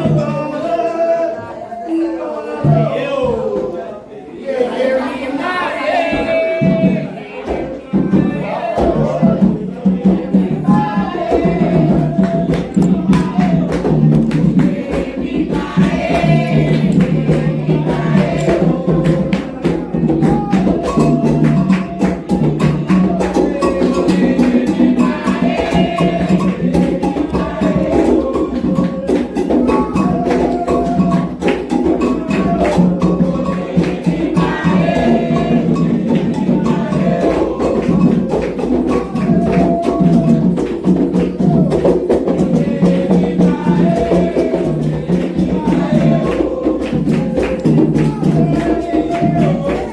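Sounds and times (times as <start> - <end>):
hand drums playing fast rhythm: 0.0 - 0.7, 6.1 - 49.9
sung chant phrases: 0.0 - 49.9.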